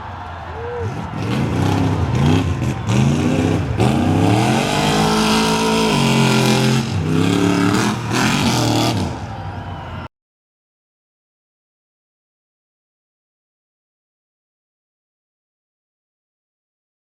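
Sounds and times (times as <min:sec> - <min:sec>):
race truck engine revving: 0:00.7 - 0:10.0.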